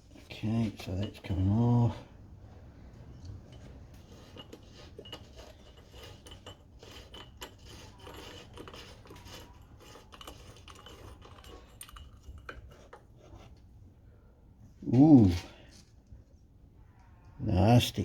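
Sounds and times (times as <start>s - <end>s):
small metallic clicks and clinks: 3.2s - 13.0s.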